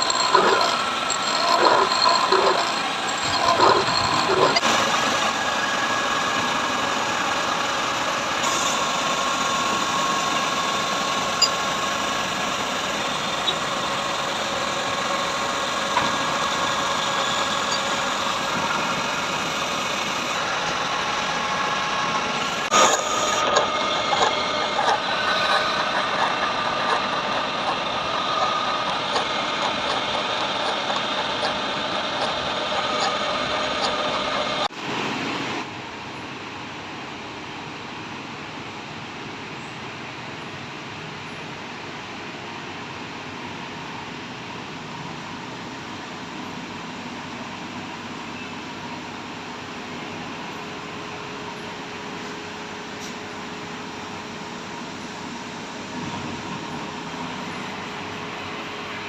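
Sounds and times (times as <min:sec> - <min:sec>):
machine tool cutting metal: 0:00.0 - 0:34.7.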